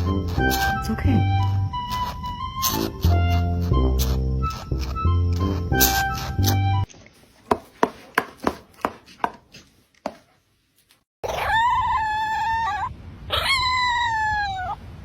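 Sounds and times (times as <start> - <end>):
pet crying: 0.0 - 6.8, 11.2 - 14.8.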